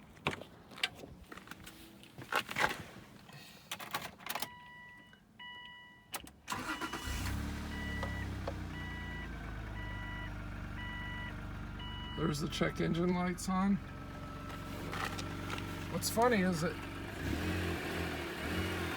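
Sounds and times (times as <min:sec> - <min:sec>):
car engine cranking and idling: 0:03.1 - 0:18.9
dashboard warning chime beeping: 0:04.4 - 0:14.7.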